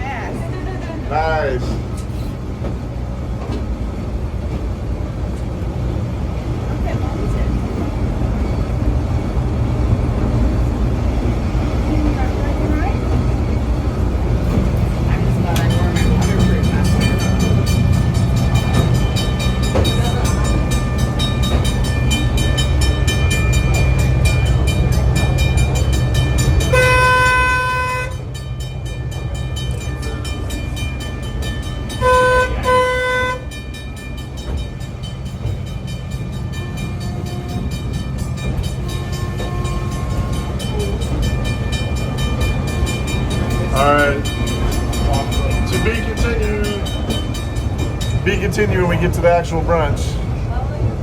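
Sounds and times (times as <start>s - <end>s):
train rumbling: 0.0s - 51.0s
train horn blasts: 26.6s - 28.3s, 31.9s - 33.6s.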